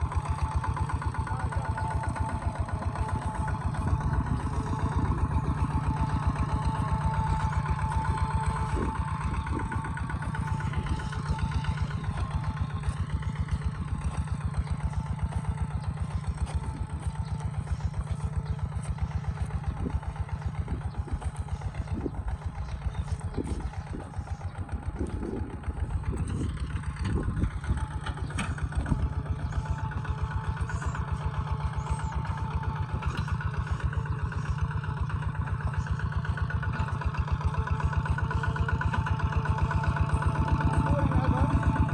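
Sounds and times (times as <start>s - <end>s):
diesel engine chugging: 0.0s - 41.9s.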